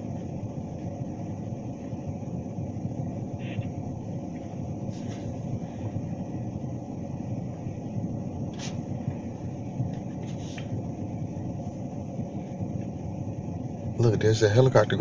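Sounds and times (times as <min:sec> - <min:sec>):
distant engine rumble: 0:00.0 - 0:15.0.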